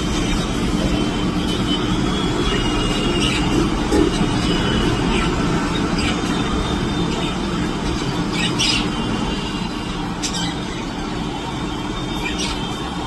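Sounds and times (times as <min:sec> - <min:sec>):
bird squawks: 0:07.1 - 0:11.1, 0:12.1 - 0:12.8.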